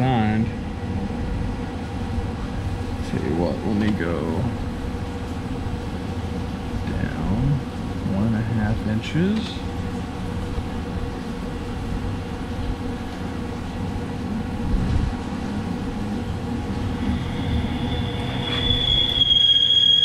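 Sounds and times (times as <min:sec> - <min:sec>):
metal-on-metal squeal: 0:16.8 - 0:20.0.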